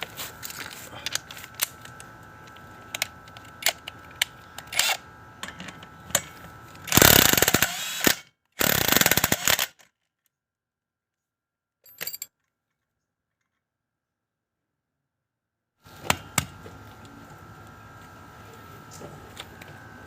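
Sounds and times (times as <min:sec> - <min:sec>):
rattling power tool bursts: 0:06.9 - 0:09.8.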